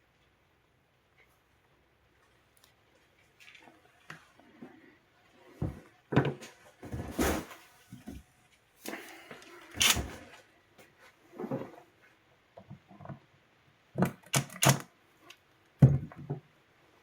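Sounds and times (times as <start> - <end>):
hard objects knocking and clattering: 15.8 - 16.5.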